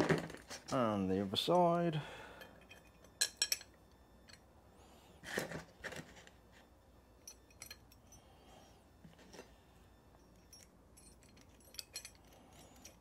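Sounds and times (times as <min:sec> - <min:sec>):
small metal parts clinking: 0:02.4 - 0:04.4, 0:07.2 - 0:08.2, 0:10.1 - 0:13.0.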